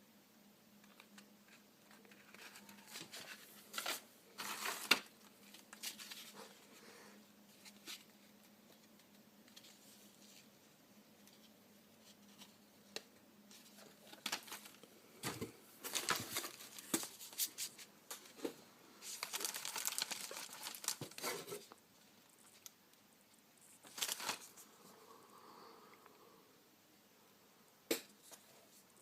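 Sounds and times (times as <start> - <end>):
packaging crinkling and tearing: 2.1 - 6.3, 15.8 - 17.5, 19.0 - 21.8, 23.8 - 24.6.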